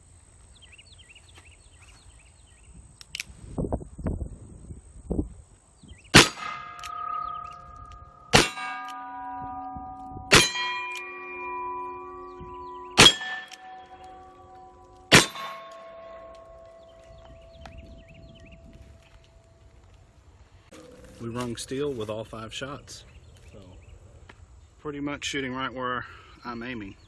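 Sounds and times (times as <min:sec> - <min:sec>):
steel plate target ringing: 0:06.2 - 0:17.6.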